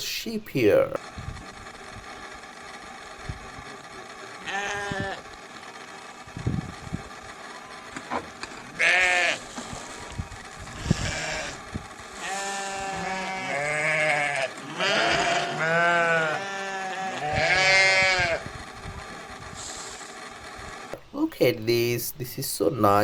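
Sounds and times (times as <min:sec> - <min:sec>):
sheep bleating: 0:04.4 - 0:05.2, 0:08.7 - 0:09.5, 0:10.7 - 0:11.6, 0:12.2 - 0:18.5.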